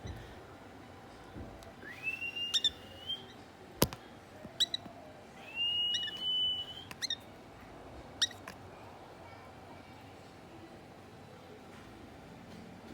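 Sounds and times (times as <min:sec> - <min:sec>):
long steady whistles: 0:01.8 - 0:03.4, 0:05.4 - 0:06.9
chicks chirping: 0:02.5 - 0:03.0.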